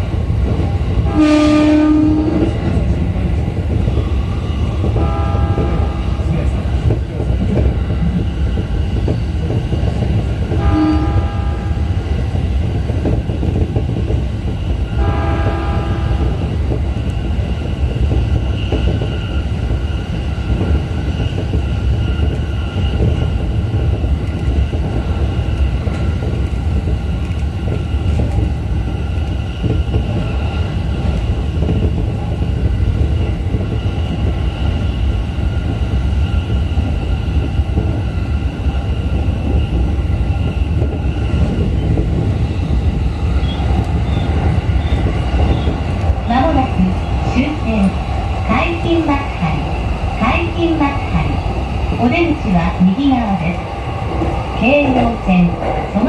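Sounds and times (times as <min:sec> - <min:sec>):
train wheels rumbling on rail: 0:00.0 - 0:56.0
train horn: 0:01.0 - 0:02.5, 0:05.0 - 0:06.0, 0:10.5 - 0:11.9, 0:15.0 - 0:16.3.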